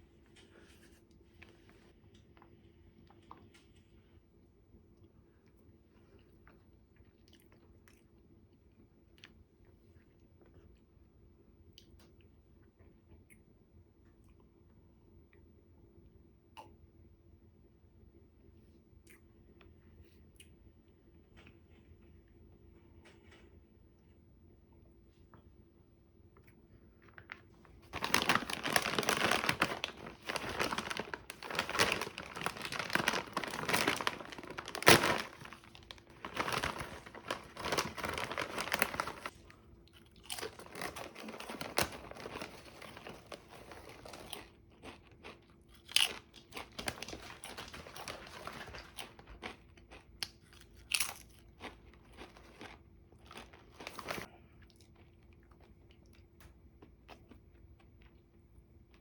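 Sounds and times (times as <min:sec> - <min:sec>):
snack packaging crinkling: 0:27.0 - 0:54.3
crackles and crunches: 0:27.0 - 0:58.3.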